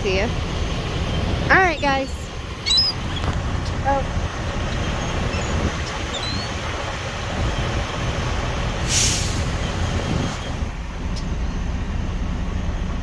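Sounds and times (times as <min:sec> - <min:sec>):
low outdoor rumble: 0:00.0 - 0:13.0
short sharp hiss: 0:08.8 - 0:09.6.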